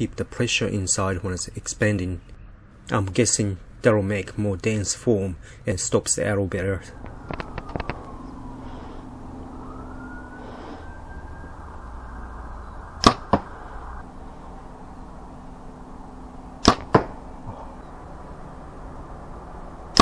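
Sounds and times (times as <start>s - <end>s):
arrow striking foam target: 13.0s - 13.5s, 16.6s - 17.2s.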